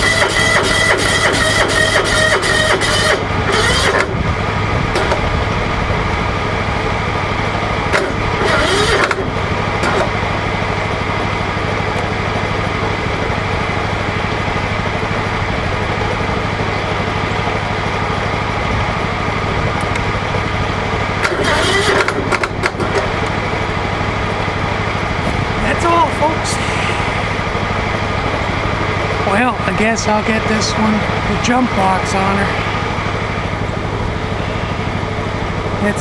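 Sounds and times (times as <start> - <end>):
lawn tractor engine idling: 0.0 - 36.0
brief rattling noise: 25.2 - 27.6.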